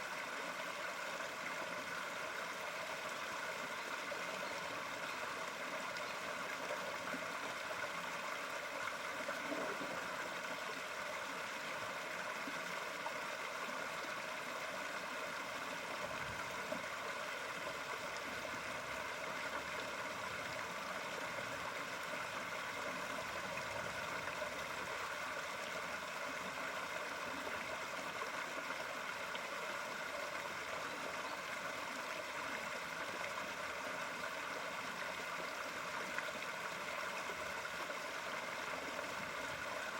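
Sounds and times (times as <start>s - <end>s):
running water rushing: 1.0s - 30.7s.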